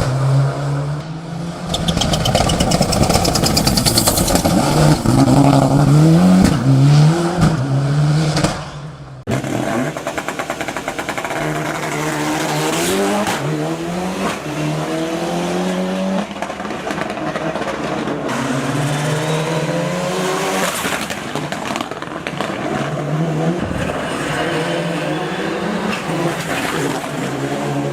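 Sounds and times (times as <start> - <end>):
car engine revving hard: 9.3 - 27.9.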